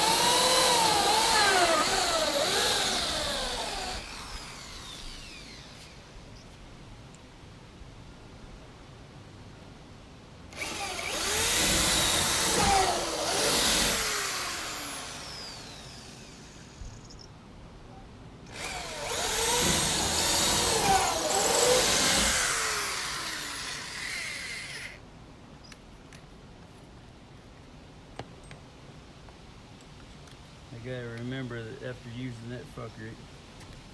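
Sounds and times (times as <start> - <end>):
electric power drill running: 0.0 - 6.1, 10.5 - 17.1, 18.5 - 25.0.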